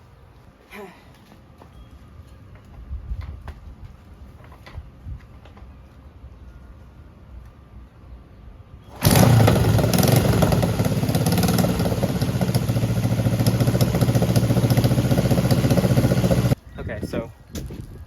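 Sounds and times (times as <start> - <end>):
motorcycle engine running: 8.9 - 16.6
motorcycle engine starting: 8.9 - 16.6.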